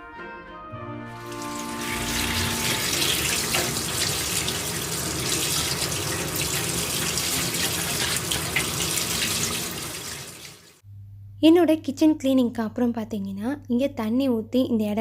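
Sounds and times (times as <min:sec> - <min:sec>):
tap water splashing into sink: 0:01.2 - 0:10.8.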